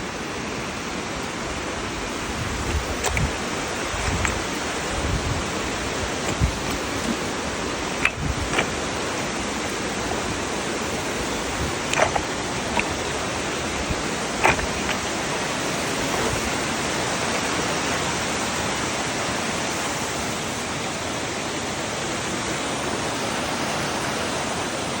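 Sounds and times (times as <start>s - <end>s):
fast-flowing water rushing: 0.1s - 25.0s
brief clicks: 2.7s - 3.3s, 8.0s - 9.4s, 14.4s - 15.1s.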